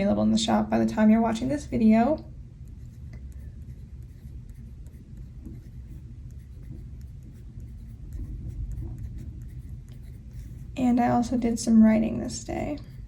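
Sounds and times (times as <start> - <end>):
pen scratching on paper: 1.0 - 13.0.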